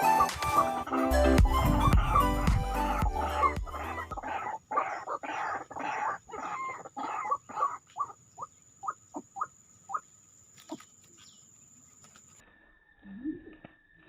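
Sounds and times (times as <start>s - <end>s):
waterhen croaking calls: 0.0s - 10.1s.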